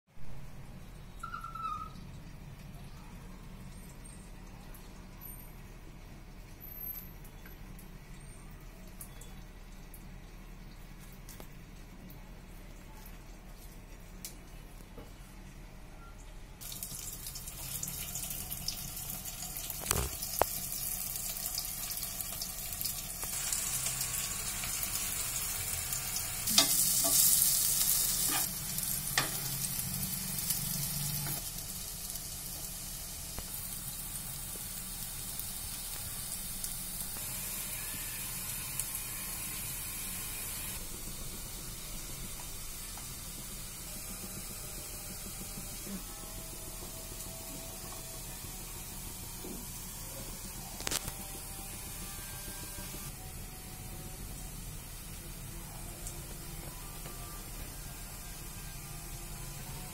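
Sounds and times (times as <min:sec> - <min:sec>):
vegetable slices sizzling in oil: 0:16.6 - 0:44.6
metal spoon scraping a pan: 0:26.5 - 0:28.6.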